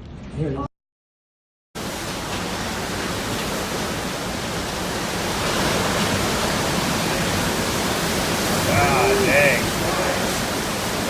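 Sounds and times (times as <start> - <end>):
hurricane wind roaring: 1.8 - 11.0
storm-driven water rushing: 1.8 - 11.0
wind buffeting microphone: 2.5 - 11.0.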